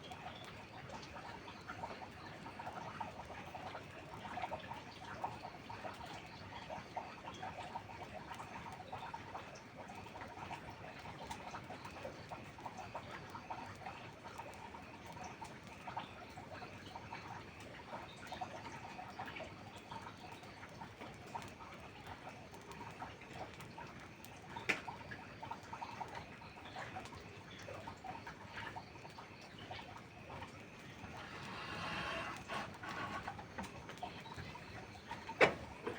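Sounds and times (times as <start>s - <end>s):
soft patter of rain: 0.0s - 35.9s
campfire crackling: 20.4s - 35.9s.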